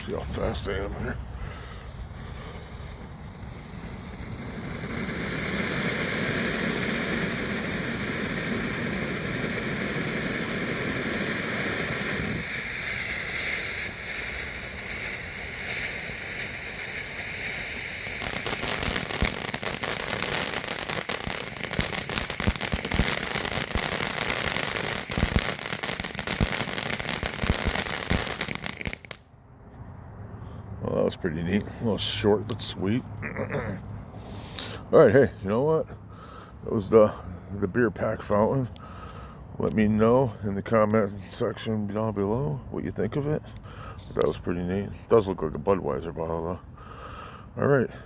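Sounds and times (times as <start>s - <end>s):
firework fountain hissing and crackling: 0.0s - 29.2s.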